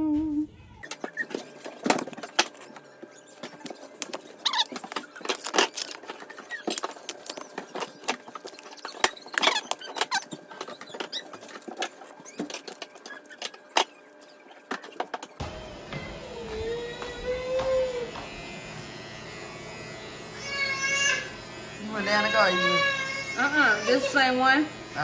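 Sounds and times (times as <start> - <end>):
clicks and crackles of food handling: 0.8 - 15.4
short squeaks: 0.8 - 15.4.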